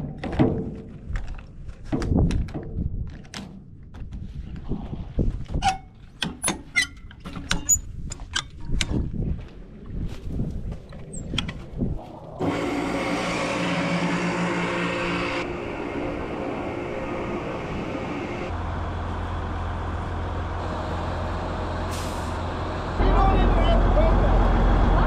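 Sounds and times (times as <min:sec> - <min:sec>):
heavy vehicle engine running: 0:12.4 - 0:25.0.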